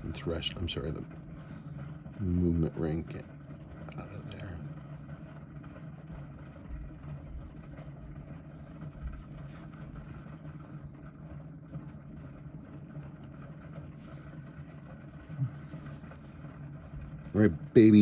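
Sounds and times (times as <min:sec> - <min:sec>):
low hum: 0:00.0 - 0:18.0
soft scraping: 0:09.1 - 0:10.5.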